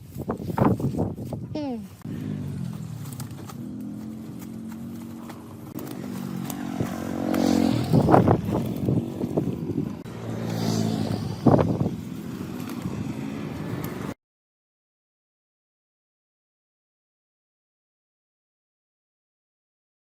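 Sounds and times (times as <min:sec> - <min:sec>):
motorcycle engine revving: 0:02.0 - 0:14.2.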